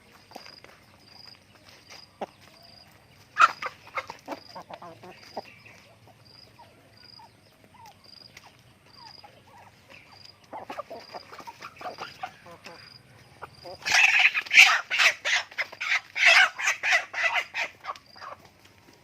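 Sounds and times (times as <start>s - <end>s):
chickens clucking: 0.0s - 19.0s
chicken squawk: 3.3s - 18.5s.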